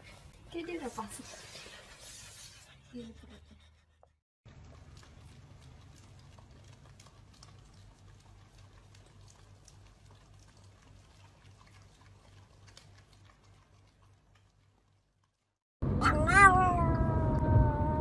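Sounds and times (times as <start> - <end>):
dogs licking: 4.5 - 15.4
low hum: 15.8 - 18.0.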